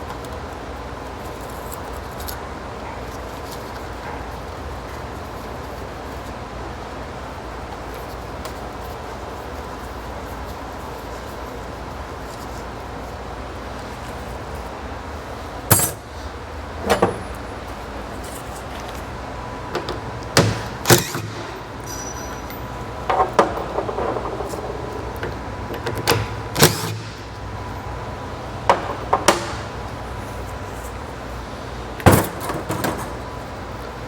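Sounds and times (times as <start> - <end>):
steady background hum: 0.0 - 34.0
metallic clanks and knocks: 15.7 - 16.2, 19.7 - 27.3, 28.7 - 30.0.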